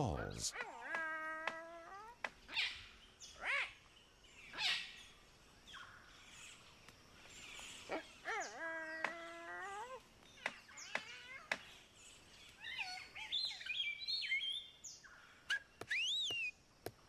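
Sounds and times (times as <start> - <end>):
cockatoo whistled calls: 15.5 - 16.6.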